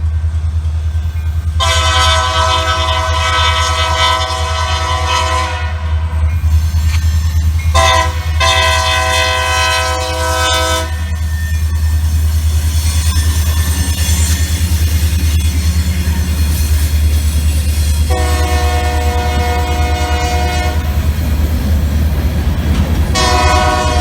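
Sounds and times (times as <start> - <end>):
locomotive rumble: 0.0 - 24.0
locomotive air horn: 1.6 - 6.2, 7.7 - 11.2, 18.1 - 21.0, 23.1 - 24.0.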